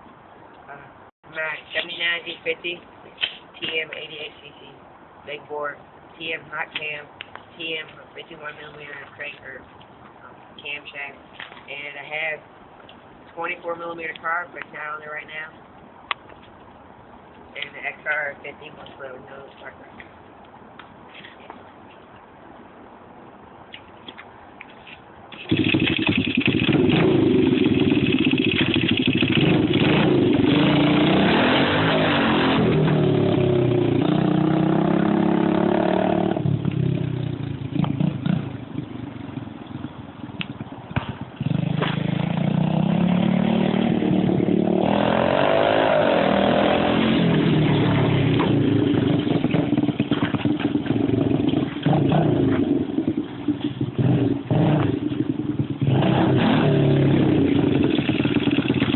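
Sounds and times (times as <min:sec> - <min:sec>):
minibike engine revving: 0:25.3 - 0:58.9.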